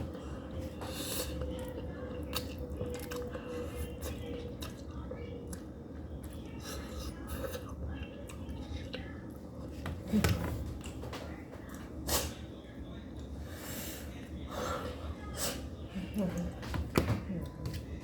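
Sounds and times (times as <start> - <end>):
steady low hum: 0.0 - 18.0
noodles being chewed: 0.6 - 9.8.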